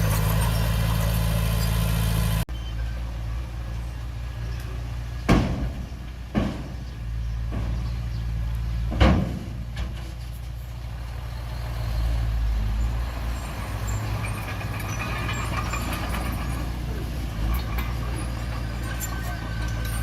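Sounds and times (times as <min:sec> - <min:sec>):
high metallic squeaks and clicks: 0:00.0 - 0:01.9, 0:13.3 - 0:20.0
bulldozer diesel engine running: 0:00.0 - 0:20.0.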